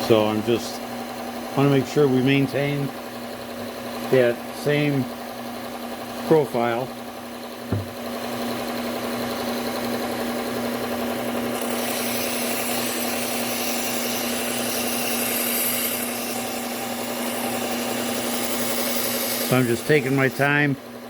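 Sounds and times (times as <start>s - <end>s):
belt sander motor hum: 0.0s - 21.0s
belt grinding steel: 11.4s - 20.6s.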